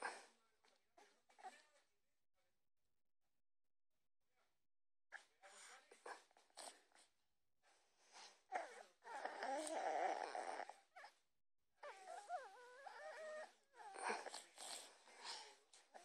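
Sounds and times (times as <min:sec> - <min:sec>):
dog whining: 0:08.5 - 0:11.2, 0:11.8 - 0:14.5.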